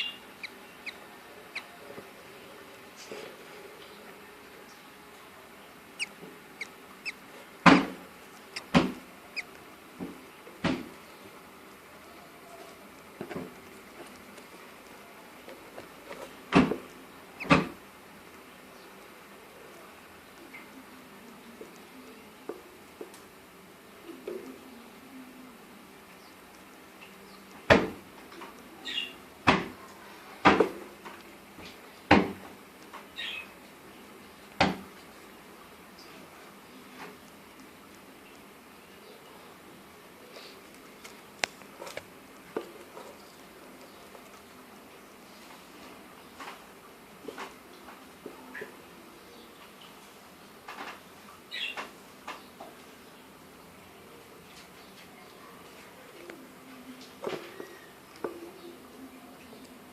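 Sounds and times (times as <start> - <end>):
budgerigars chirping: 0.0 - 1.8, 6.0 - 7.2.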